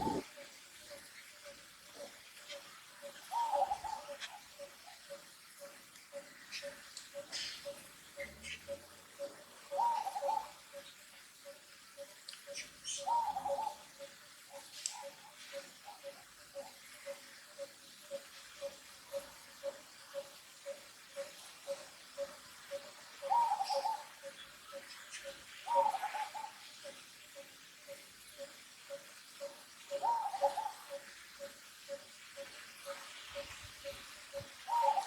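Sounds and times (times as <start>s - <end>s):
higher wavering animal calls: 0.0s - 0.3s, 28.9s - 35.0s.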